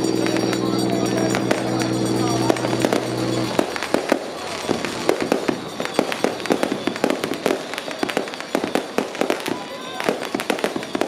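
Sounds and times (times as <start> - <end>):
steady low tone: 0.0 - 4.4
firecrackers popping: 0.0 - 11.0.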